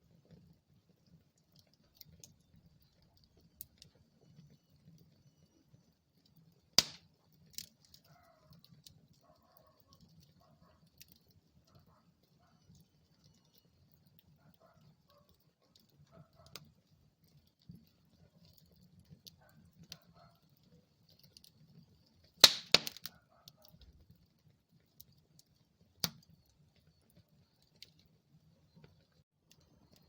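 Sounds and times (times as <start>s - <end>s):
wood fire crackling: 0.0s - 30.0s
fire popping sharply: 6.8s - 7.0s, 22.4s - 23.1s.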